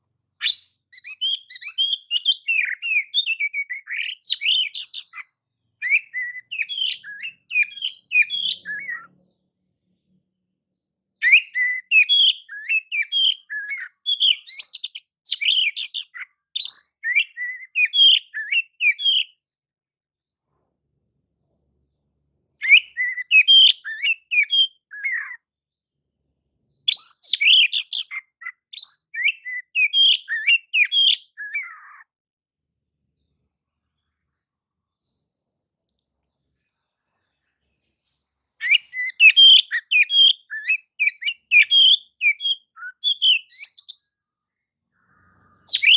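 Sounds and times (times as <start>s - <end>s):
songbird whistling and chattering: 0.4s - 5.2s, 5.8s - 9.1s, 11.2s - 19.3s, 22.6s - 25.4s, 26.9s - 32.1s, 38.6s - 44.0s, 45.6s - 45.9s.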